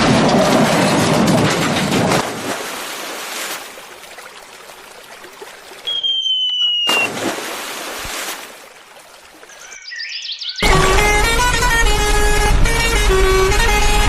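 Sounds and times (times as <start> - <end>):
falling whistle tone: 5.8 - 7.2.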